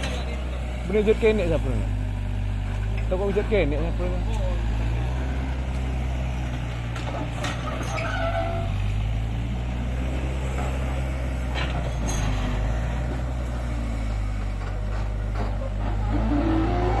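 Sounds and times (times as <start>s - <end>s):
diesel engine droning: 0.0s - 17.0s
short squeaks: 7.5s - 8.8s.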